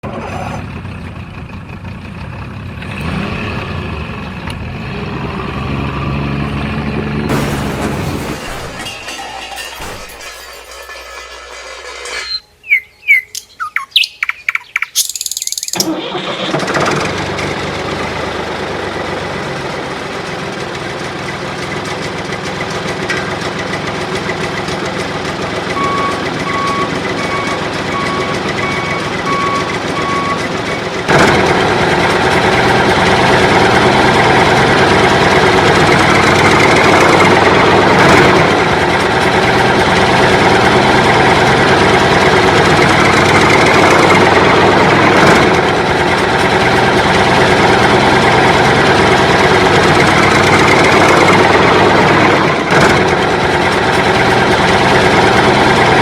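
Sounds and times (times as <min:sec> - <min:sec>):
truck engine running: 0:00.0 - 0:56.0
sharp click: 0:14.9 - 0:15.8
reversing alarm beeping: 0:25.7 - 0:30.5.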